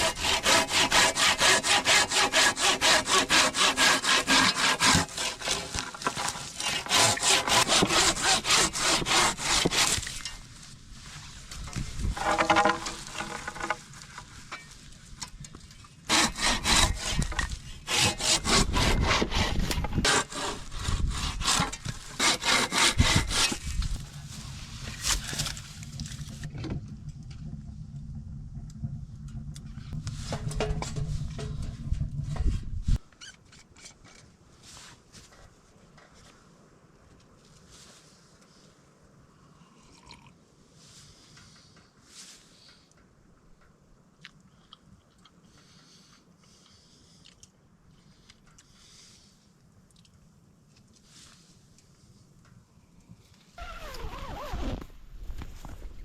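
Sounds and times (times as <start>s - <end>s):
hand saw cutting wood: 0.0s - 10.4s, 12.2s - 13.8s, 16.1s - 26.4s.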